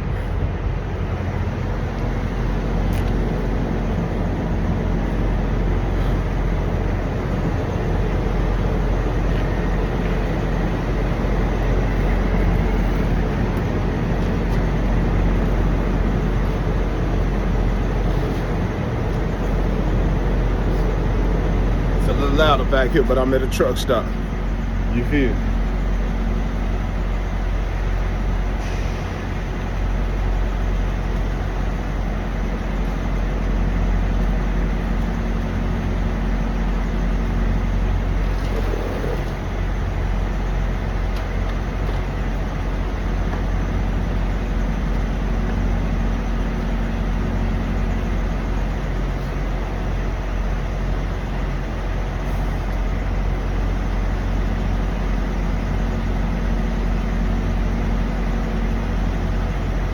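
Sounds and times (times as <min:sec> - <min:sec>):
diesel truck engines idling: 0:00.0 - 0:59.9.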